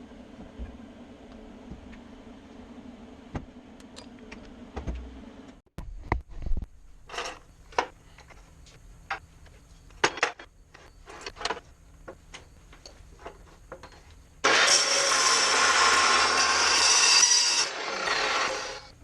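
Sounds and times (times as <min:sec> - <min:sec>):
band saw cutting: 0:14.4 - 0:18.9.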